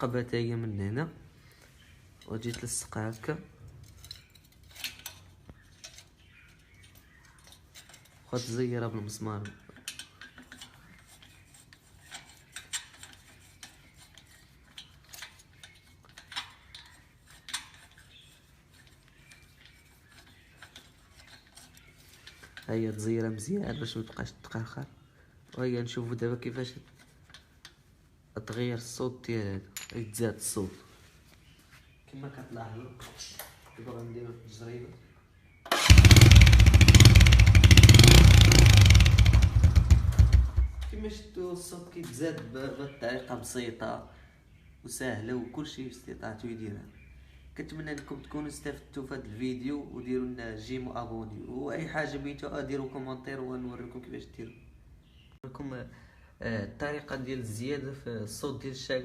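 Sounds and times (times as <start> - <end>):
moped engine revving loudly: 35.7 - 40.8.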